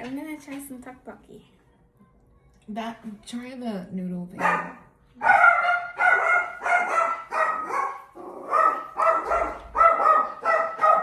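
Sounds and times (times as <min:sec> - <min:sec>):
dog barking: 0:04.4 - 0:11.0.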